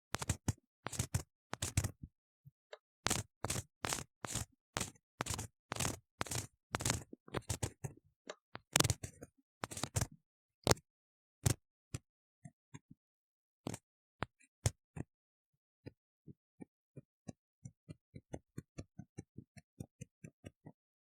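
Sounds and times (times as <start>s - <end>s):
tool scraping inside ear model: 0.2s - 1.9s, 3.1s - 7.8s, 9.6s - 10.1s.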